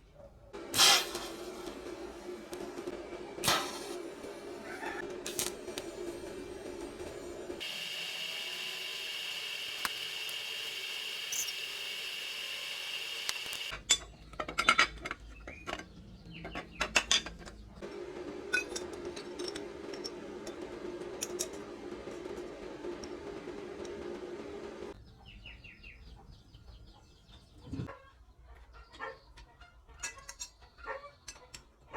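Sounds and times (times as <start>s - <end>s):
machine hiss with high tone: 0.7s - 2.4s, 3.4s - 13.7s
machine low hum: 1.3s - 13.7s.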